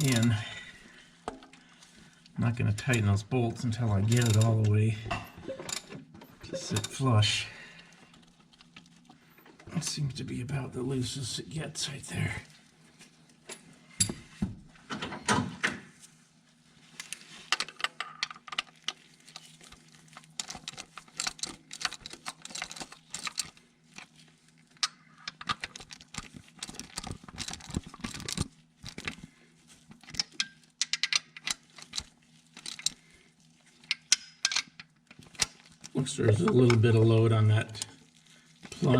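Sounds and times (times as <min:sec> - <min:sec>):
metal tools clinking: 0:00.0 - 0:00.4, 0:04.0 - 0:07.0
steady low hum: 0:00.0 - 0:17.5.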